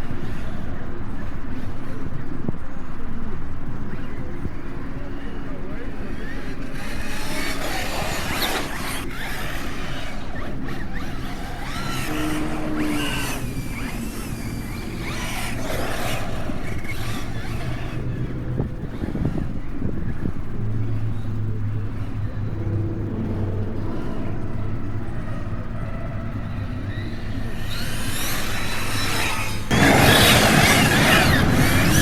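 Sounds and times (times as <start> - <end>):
electric motor whine: 5.0 - 32.0.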